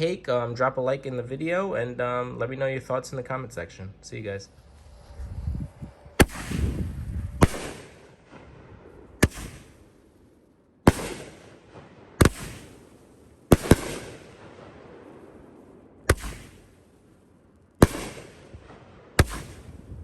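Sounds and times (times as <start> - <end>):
firework hiss: 4.5 - 8.2, 9.2 - 9.9, 12.2 - 14.3, 16.1 - 17.1
firework bangs: 6.2 - 20.0.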